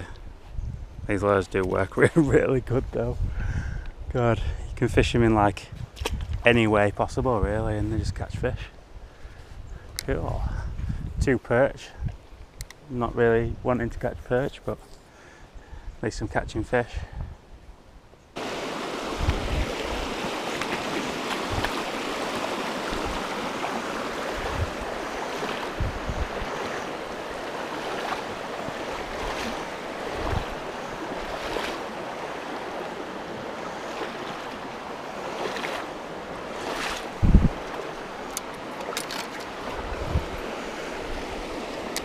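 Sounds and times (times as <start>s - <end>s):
wind buffeting microphone: 0.0s - 12.6s, 18.4s - 42.0s
flowing river water: 18.3s - 42.0s.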